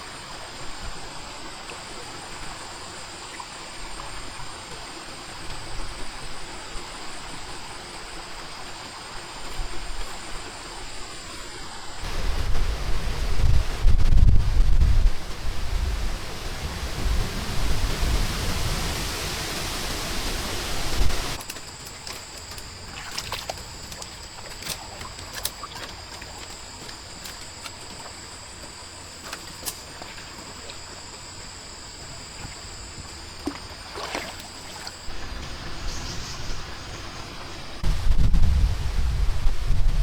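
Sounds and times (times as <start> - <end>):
wind buffeting microphone: 12.0 - 21.4, 35.1 - 40.0
rainstorm: 12.0 - 24.8, 35.0 - 40.0
water trickling and dripping: 16.3 - 35.1
sharp drips: 19.6 - 35.1.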